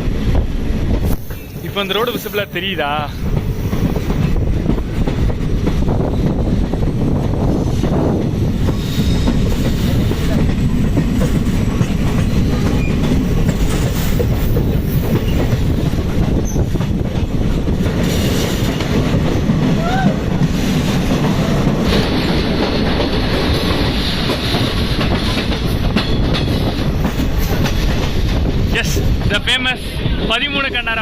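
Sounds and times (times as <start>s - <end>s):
train coach rumbling: 0.0s - 31.0s
hiss: 8.6s - 10.4s
wheels clicking over rail joints: 9.3s - 28.5s.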